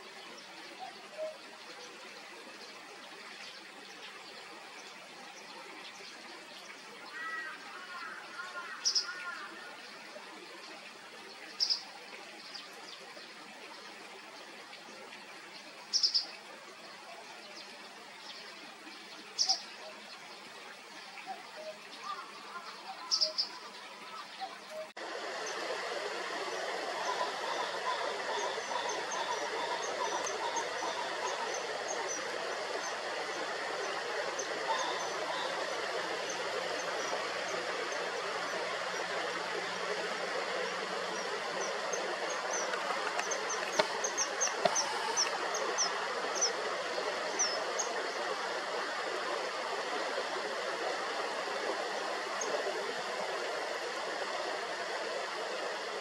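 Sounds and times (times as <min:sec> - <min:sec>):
stream water rushing: 0:00.0 - 0:56.0
kingfishers calling: 0:21.3 - 0:49.1.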